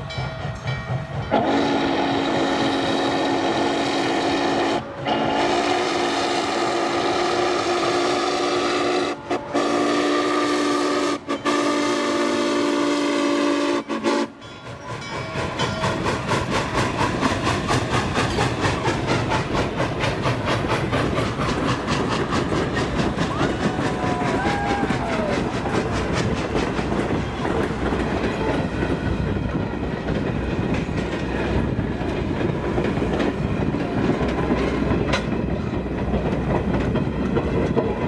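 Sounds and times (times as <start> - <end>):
train rhythmic beat: 0.0 - 38.0
steam whistle blasts: 1.3 - 14.4.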